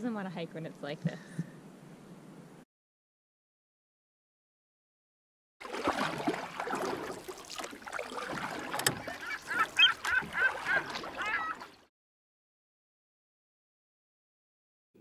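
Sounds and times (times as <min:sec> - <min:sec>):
short bird calls: 0:09.0 - 0:11.7.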